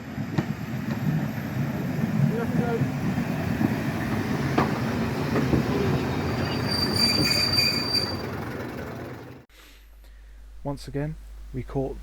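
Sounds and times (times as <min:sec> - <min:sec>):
train wheels rumbling on track: 0:00.0 - 0:09.4
steel wheel squeal: 0:05.8 - 0:08.5.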